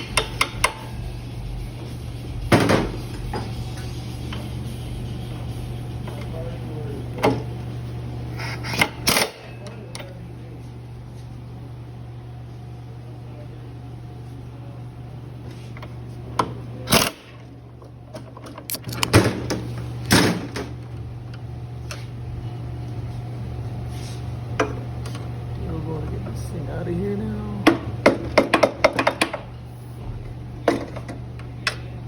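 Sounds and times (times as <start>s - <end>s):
steady low hum: 0.0s - 32.0s
tools and metal parts clanking: 18.1s - 19.6s.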